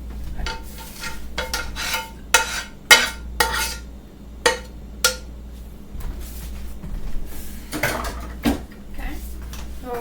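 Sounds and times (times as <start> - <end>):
metal utensil scraping pan: 0.4 - 5.2.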